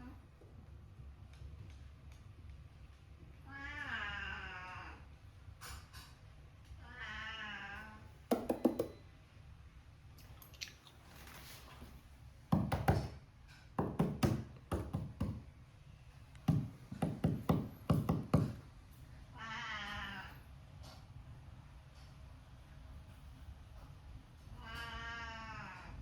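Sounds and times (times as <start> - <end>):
cat meowing: 3.5 - 5.0, 6.8 - 8.1, 19.3 - 20.4, 24.6 - 26.0
quick knocks and taps: 8.3 - 9.0, 12.5 - 13.2, 13.8 - 15.4, 16.4 - 18.6.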